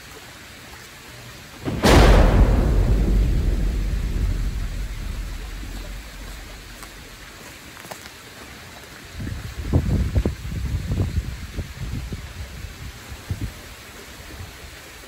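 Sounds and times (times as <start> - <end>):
thunderclap and rumble: 1.6 - 7.2.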